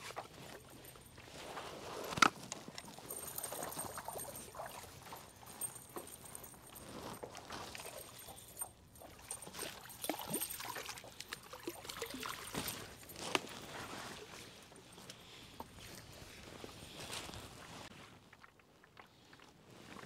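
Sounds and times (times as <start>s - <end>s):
clicks and knocks of fishing gear: 0.0s - 13.8s
fish splashing and thrashing: 2.3s - 13.6s
water sloshing: 2.8s - 14.6s.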